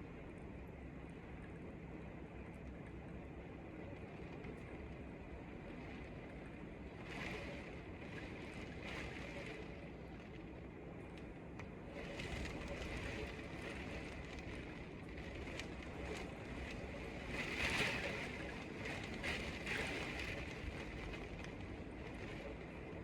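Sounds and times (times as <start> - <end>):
wind and rain rushing: 11.8 - 23.0.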